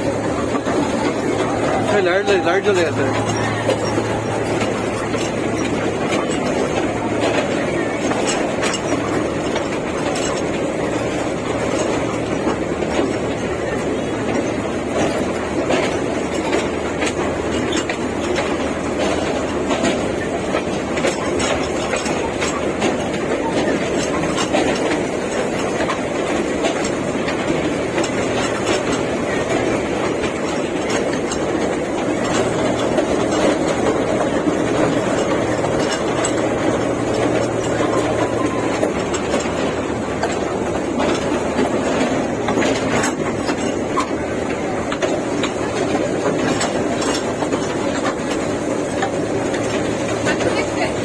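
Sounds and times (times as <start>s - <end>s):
toy train wheels rumbling: 0.0s - 51.0s.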